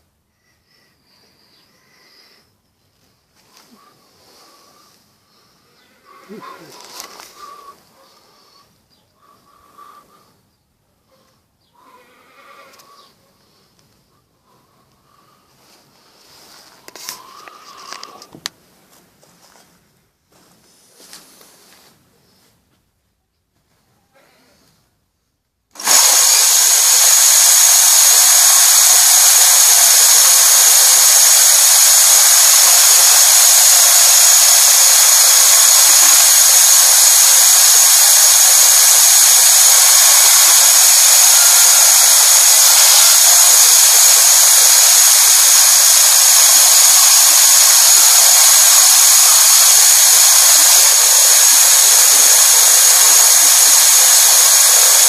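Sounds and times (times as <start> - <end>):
band saw running with whine: 25.8 - 55.0.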